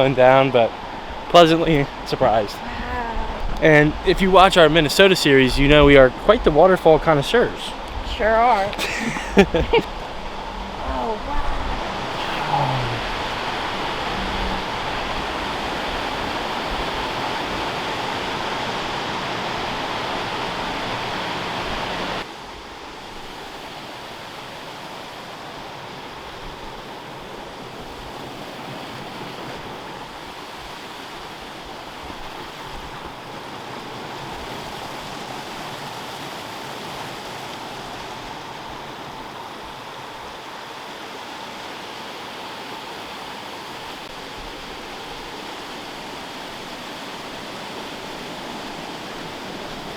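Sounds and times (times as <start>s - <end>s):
waterfall rushing: 6.8s - 26.2s.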